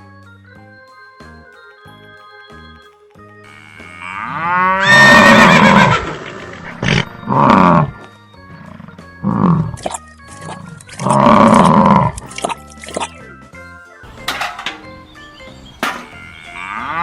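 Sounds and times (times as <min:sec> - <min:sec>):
background music: 0:00.0 - 0:17.0
loud animal-like calls: 0:03.6 - 0:08.0.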